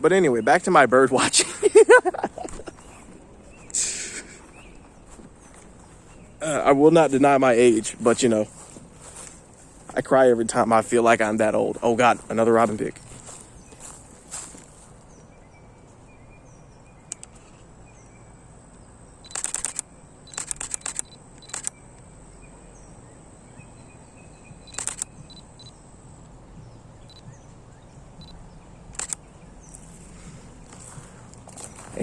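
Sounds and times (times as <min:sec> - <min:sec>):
camera shutter clicks: 0:17.1 - 0:17.5, 0:19.2 - 0:21.8, 0:24.6 - 0:25.7, 0:28.9 - 0:29.3.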